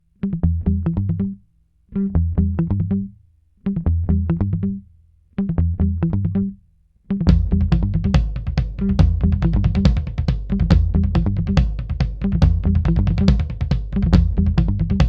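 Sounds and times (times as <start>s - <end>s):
plucked guitar and bass: 0.2s - 15.0s
drum beat: 7.3s - 15.0s.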